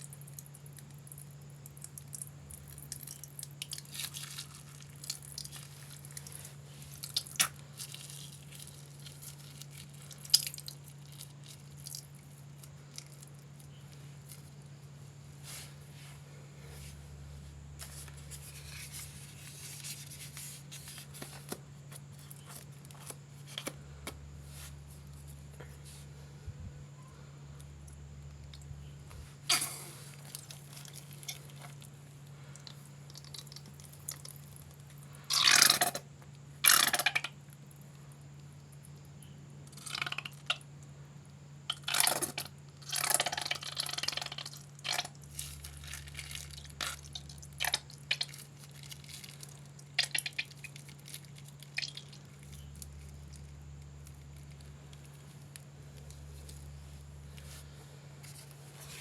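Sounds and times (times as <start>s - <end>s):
slime squishing and popping: 0.0s - 13.7s, 41.7s - 52.9s.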